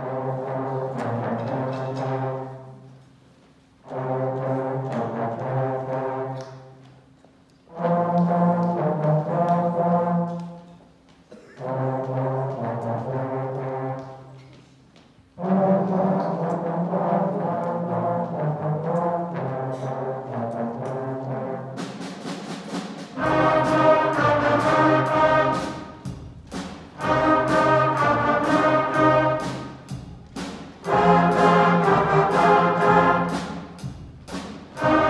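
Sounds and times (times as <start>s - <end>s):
concert band playing held chords: 22.3s - 35.0s.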